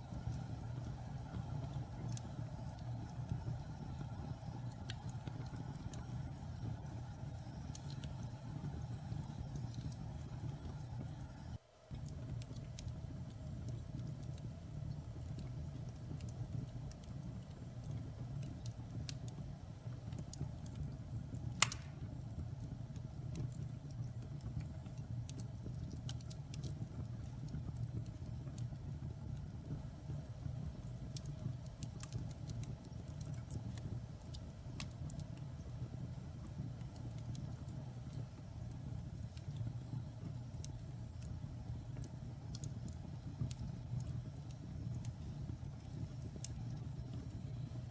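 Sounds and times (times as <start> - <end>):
wood fire crackling: 0.0 - 47.9
burning wood popping: 20.0 - 29.8.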